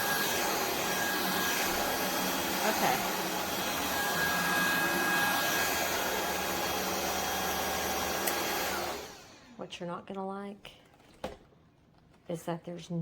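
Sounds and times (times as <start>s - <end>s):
vacuum cleaner motor whine: 0.0s - 9.6s.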